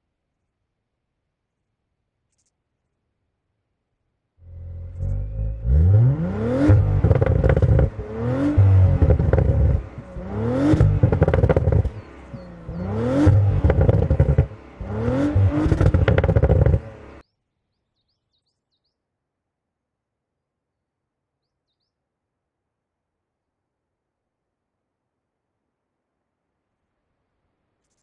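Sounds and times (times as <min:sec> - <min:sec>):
car engine revving: 0:04.4 - 0:17.2.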